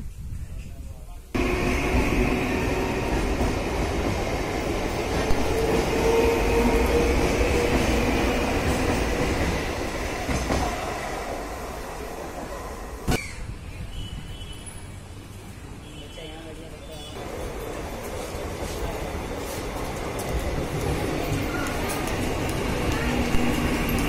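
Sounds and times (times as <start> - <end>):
electric train rumbling: 1.4 - 13.3, 17.2 - 24.0.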